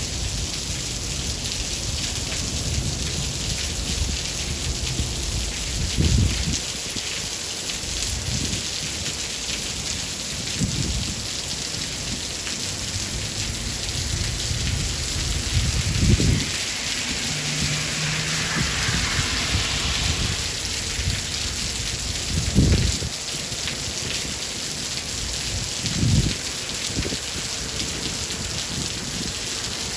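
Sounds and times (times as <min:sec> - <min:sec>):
steady rain: 0:00.0 - 0:29.9
thunder rumbling: 0:13.0 - 0:23.2.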